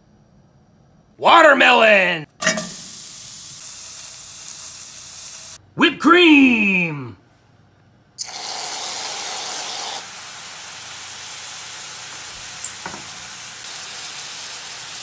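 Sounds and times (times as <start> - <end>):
cream sizzling in a skillet: 2.6 - 5.6, 8.2 - 15.0
aerosol can hissing: 2.8 - 5.6, 8.2 - 11.6.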